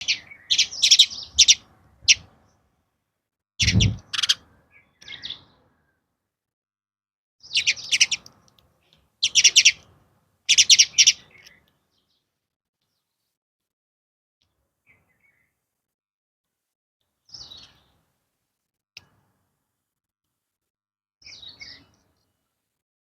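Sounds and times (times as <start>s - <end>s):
small bird chirping: 0.0s - 2.6s, 3.6s - 5.6s, 7.4s - 8.5s, 9.2s - 9.8s, 10.5s - 12.3s, 17.3s - 18.0s, 21.2s - 22.4s.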